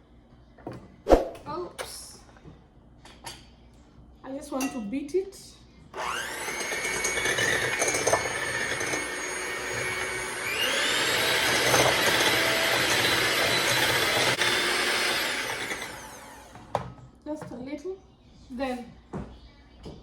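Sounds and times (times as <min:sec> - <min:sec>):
electric mixer motor whine: 0:06.0 - 0:16.8.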